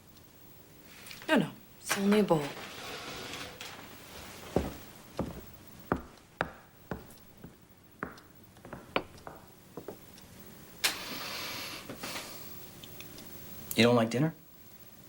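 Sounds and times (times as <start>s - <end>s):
scraping rustle: 2.3s - 4.8s.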